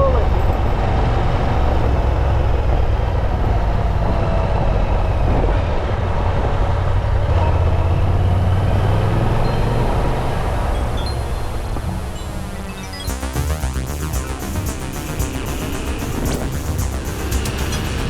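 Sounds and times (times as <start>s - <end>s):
wind rushing over microphone: 0.0s - 12.1s.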